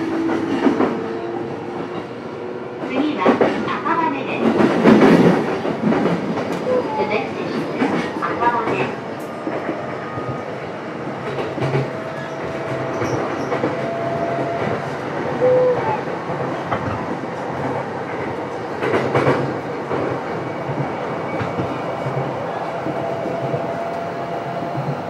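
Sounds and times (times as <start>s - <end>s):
rumble of wheels on rail: 0.0s - 25.0s
clacks over rail joints: 2.8s - 6.7s, 11.2s - 15.0s, 15.8s - 24.0s.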